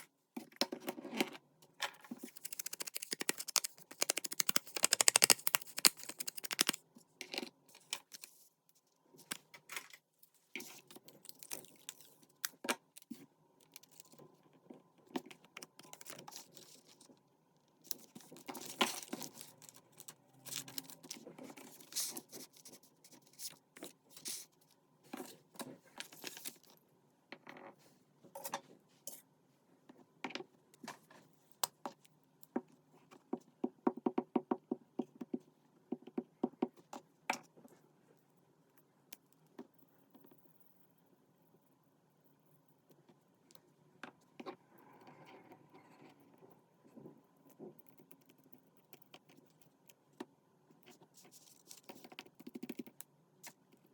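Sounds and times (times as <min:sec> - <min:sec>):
paper rustling and crinkling: 0:02.1 - 0:06.8, 0:17.9 - 0:24.5, 0:25.2 - 0:26.7
rapid paper crackling: 0:02.2 - 0:06.8, 0:17.9 - 0:23.5.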